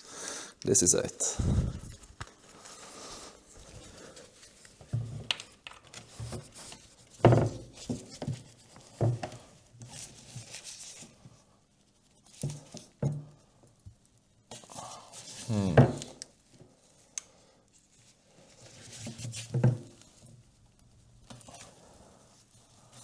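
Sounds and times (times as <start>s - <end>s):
soft breathy hiss: 0.0s - 4.8s, 14.5s - 19.1s, 21.3s - 23.0s.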